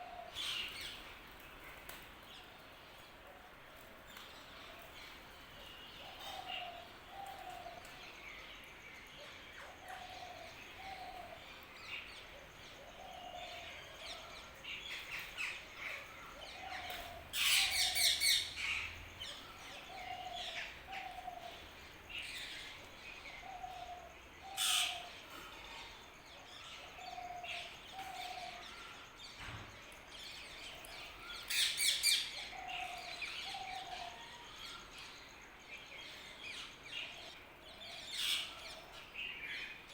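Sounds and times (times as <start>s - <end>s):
birds chirping: 3.8s - 28.9s.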